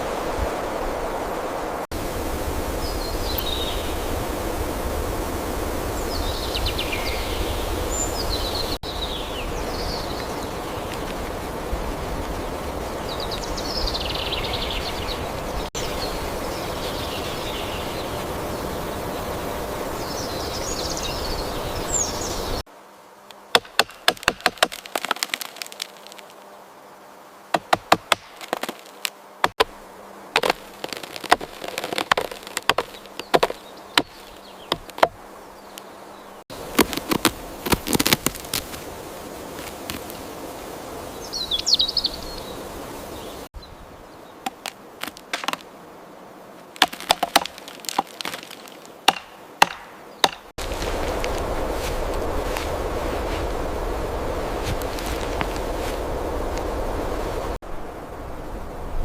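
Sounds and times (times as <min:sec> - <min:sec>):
rushing outdoor noise: 0:00.0 - 0:22.8, 0:27.4 - 0:59.0
sharp crackles and clicks: 0:23.6 - 0:26.4, 0:27.6 - 0:29.7, 0:30.4 - 0:35.9, 0:36.7 - 0:38.8, 0:46.8 - 0:49.0.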